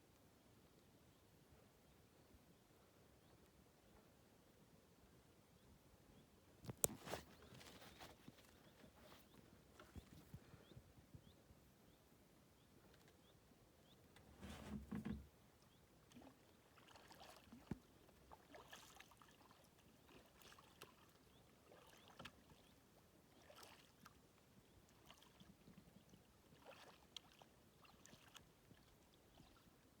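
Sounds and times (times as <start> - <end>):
kayak paddle splashing: 16.0 - 24.2, 24.9 - 29.7.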